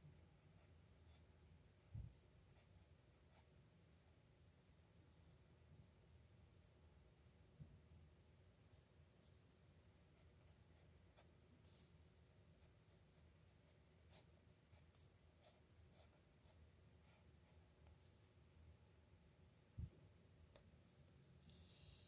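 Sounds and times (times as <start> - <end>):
pen scratching on paper: 10.2 - 18.3.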